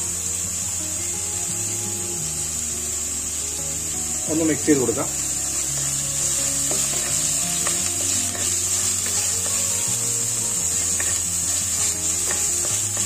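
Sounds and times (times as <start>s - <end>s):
spices sizzling in hot oil: 0.0s - 13.0s
spatula scraping pot: 5.7s - 9.8s, 10.8s - 13.0s
spatula knocking: 5.8s - 9.7s, 10.8s - 11.2s, 11.8s - 13.0s.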